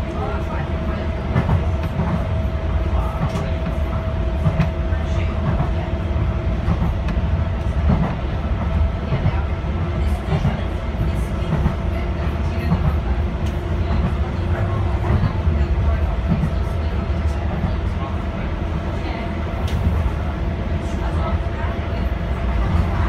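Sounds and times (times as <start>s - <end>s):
train wheels rumbling on rail: 0.0s - 23.0s
rail joint clicks: 1.2s - 9.5s, 10.2s - 18.0s, 19.6s - 20.2s.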